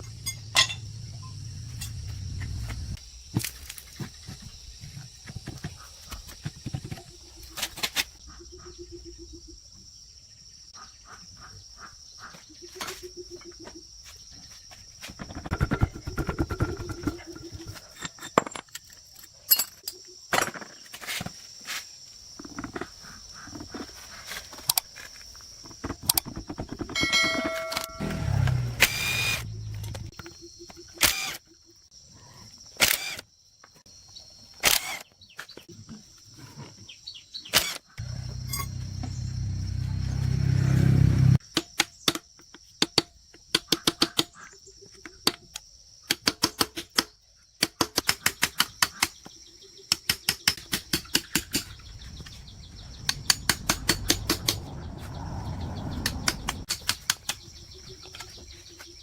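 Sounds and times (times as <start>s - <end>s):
low rumbling noise: 0.0s - 3.0s, 51.9s - 56.7s.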